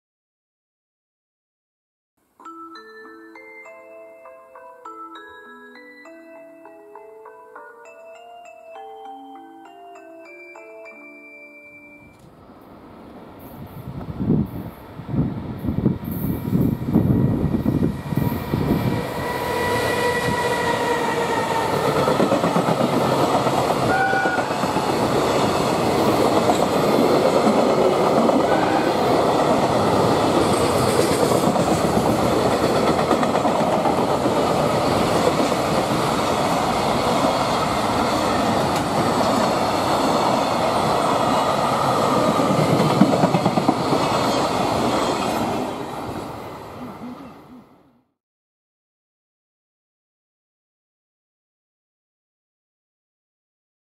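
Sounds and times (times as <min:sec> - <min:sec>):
brief high tone: 0:08.8 - 0:12.3, 0:23.9 - 0:24.6
train wheels rumbling and clattering: 0:20.2 - 0:41.2, 0:42.1 - 0:45.5.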